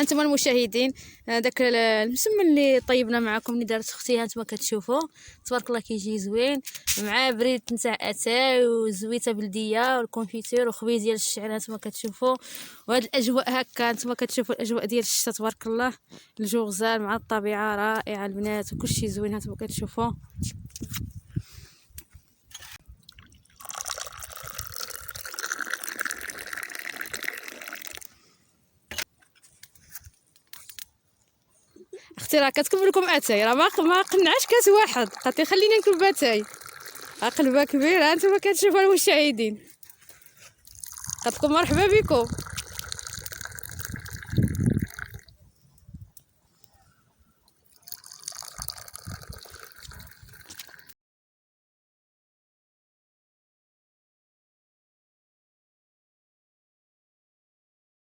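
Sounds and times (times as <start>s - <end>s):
liquid trickling and dripping: 22.9s - 28.1s, 32.7s - 38.3s, 39.8s - 45.3s, 47.4s - 50.9s
tea pouring into a glass: 23.1s - 28.1s, 32.9s - 37.7s, 40.6s - 45.3s, 47.7s - 50.9s.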